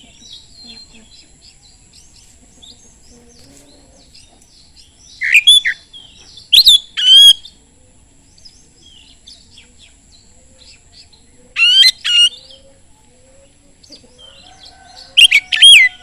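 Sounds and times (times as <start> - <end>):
bird twittering: 4.0 - 7.6, 8.3 - 12.7, 13.8 - 16.0
loud whistled bird phrases: 5.2 - 5.8, 6.5 - 7.5, 14.2 - 16.0.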